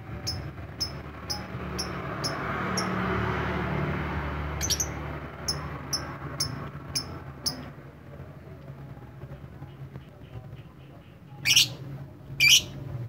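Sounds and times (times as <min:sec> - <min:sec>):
lovebird chirping: 0:00.2 - 0:03.0, 0:04.6 - 0:07.6.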